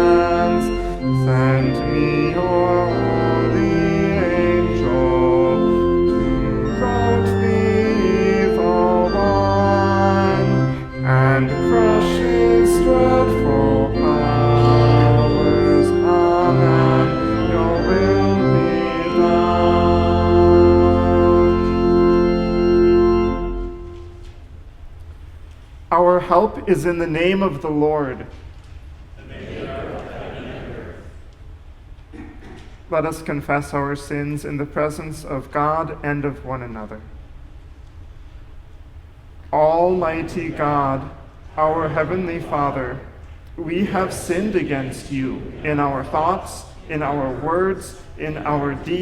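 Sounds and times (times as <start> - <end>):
congregation singing a hymn: 0.0 - 24.0, 39.6 - 49.0
church organ: 0.0 - 25.1, 25.9 - 28.4, 32.9 - 37.0, 39.4 - 49.0.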